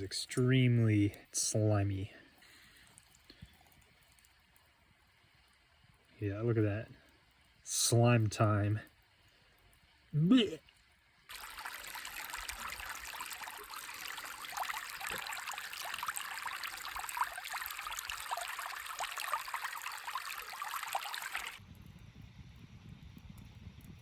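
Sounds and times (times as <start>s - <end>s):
creek water trickling and babbling: 0.0s - 21.6s.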